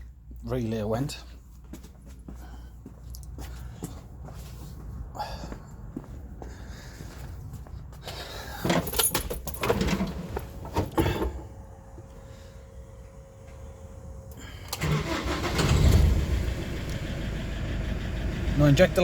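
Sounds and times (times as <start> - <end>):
van engine cranking and starting: 8.1 - 19.0
faint steady whine: 9.7 - 14.8.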